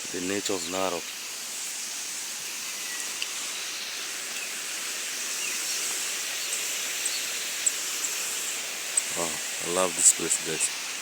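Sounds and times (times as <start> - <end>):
high hiss: 0.0 - 11.0
faint ticks and chirps: 2.4 - 9.4.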